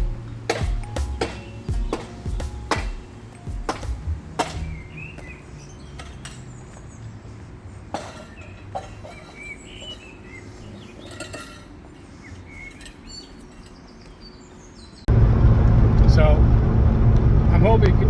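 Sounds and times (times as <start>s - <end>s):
low steady rumble: 15.1s - 18.0s.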